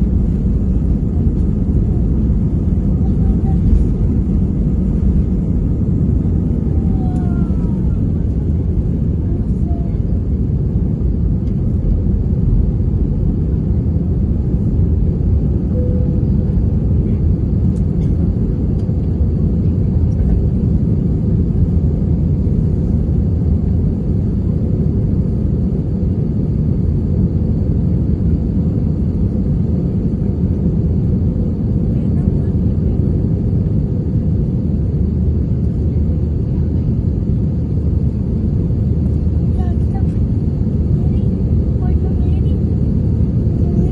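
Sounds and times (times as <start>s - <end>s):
airplane engine rumble in cabin: 0.0s - 43.9s.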